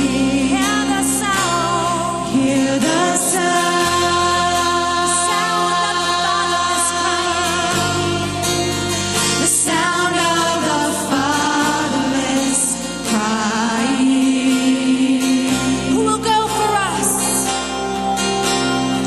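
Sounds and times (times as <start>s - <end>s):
person singing: 0.0s - 18.0s
bass line: 0.0s - 19.0s.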